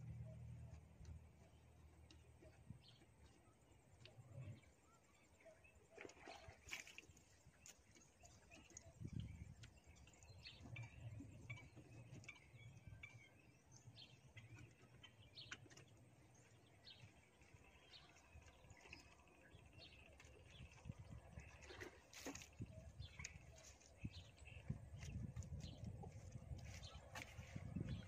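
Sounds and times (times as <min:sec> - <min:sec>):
low steady rumble: 0:00.0 - 0:05.3, 0:22.6 - 0:28.0.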